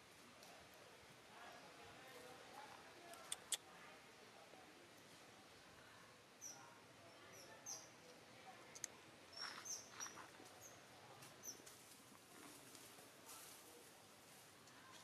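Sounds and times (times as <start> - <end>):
faint bird chirps: 6.4 - 7.9
soft rustles: 11.2 - 15.0.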